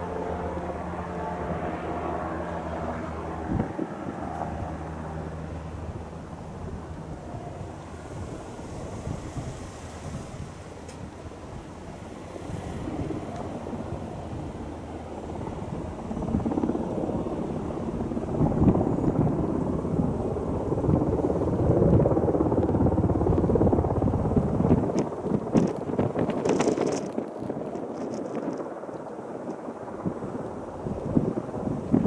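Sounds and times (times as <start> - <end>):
propeller aircraft engine: 0.0 - 32.0
wind buffeting microphone: 0.0 - 32.0
sharp crackles: 24.4 - 32.0.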